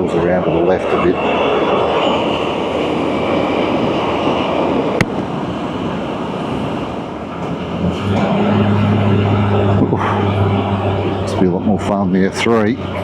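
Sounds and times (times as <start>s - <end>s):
engine hum: 0.0s - 13.0s
road noise: 0.0s - 13.0s
wind rush: 0.0s - 13.0s.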